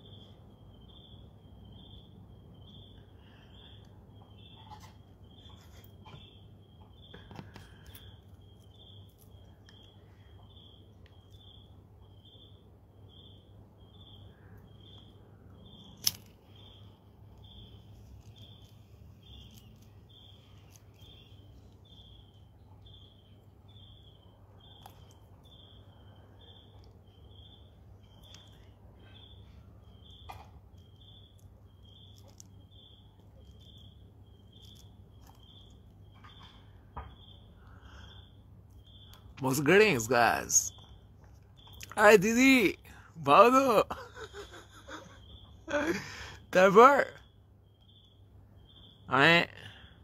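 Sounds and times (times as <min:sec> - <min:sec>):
faint insect chirping: 0:00.0 - 0:50.0.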